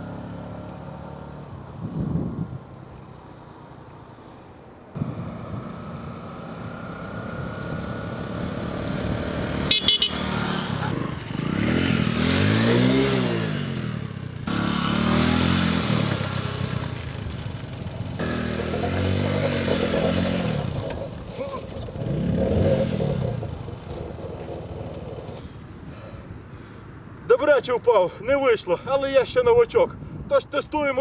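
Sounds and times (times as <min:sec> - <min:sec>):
motorcycle engine revving: 0:05.0 - 0:25.6.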